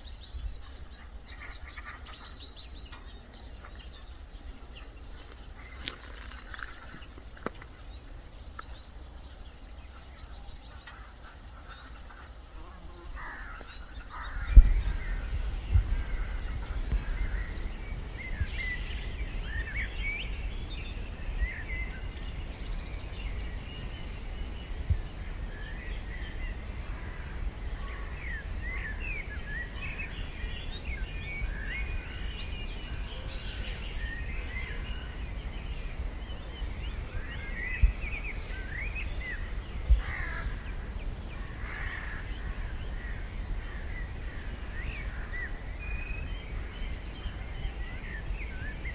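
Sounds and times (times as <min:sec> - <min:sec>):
birds singing and chirping: 0:00.0 - 0:17.7
low rumble: 0:00.0 - 0:17.7
sharp low thumps: 0:13.5 - 0:17.7.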